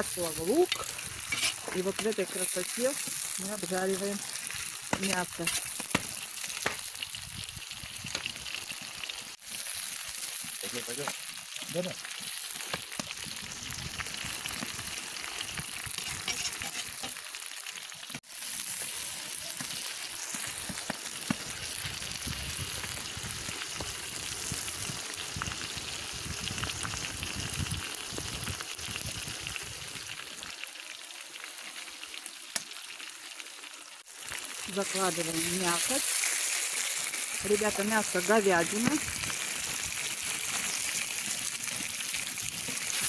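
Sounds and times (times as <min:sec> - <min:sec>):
meat sizzling in hot oil: 0:00.0 - 0:43.0
metal skimmer scraping pot: 0:00.7 - 0:02.2, 0:16.0 - 0:17.2.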